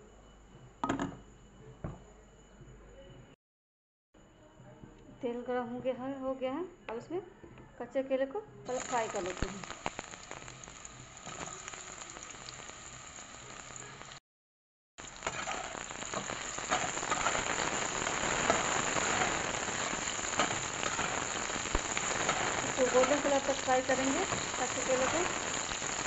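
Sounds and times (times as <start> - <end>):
banana sizzling in hot oil: 8.7 - 14.2, 15.0 - 26.0.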